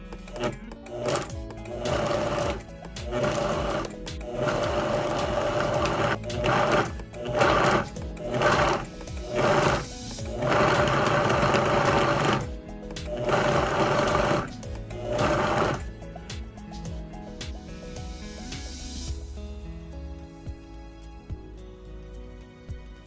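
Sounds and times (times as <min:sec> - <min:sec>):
background music: 0:00.0 - 0:23.0
hand saw cutting log: 0:00.3 - 0:12.5, 0:13.1 - 0:15.9.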